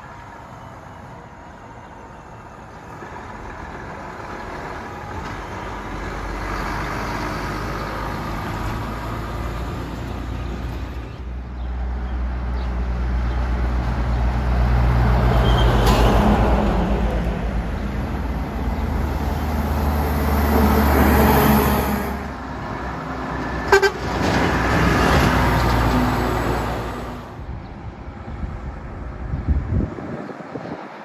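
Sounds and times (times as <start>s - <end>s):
heavy trucks driving past: 0.1s - 29.9s
truck horn toot: 23.6s - 24.4s.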